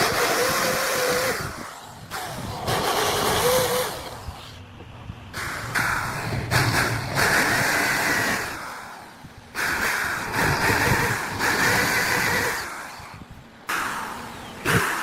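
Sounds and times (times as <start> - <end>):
electric power tool motor: 0.0 - 4.4, 10.1 - 13.0.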